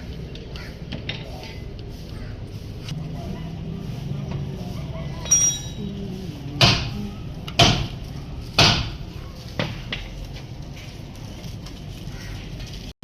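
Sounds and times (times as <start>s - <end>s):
sharp knocks: 6.6s - 8.0s, 8.6s - 9.0s.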